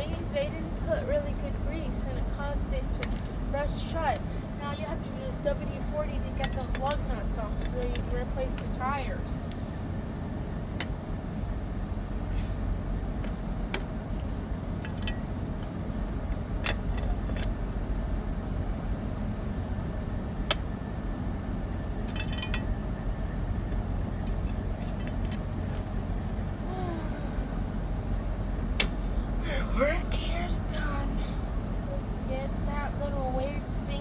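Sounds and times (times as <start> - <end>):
idling vehicle engines hum: 0.0 - 34.0.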